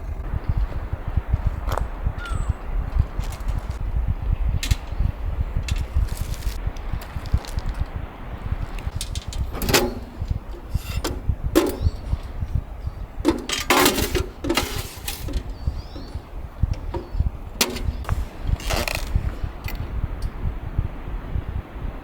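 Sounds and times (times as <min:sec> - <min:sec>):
wind rumbling on microphone: 0:00.0 - 0:22.0
rustling handling noises: 0:02.9 - 0:03.8, 0:04.6 - 0:19.8.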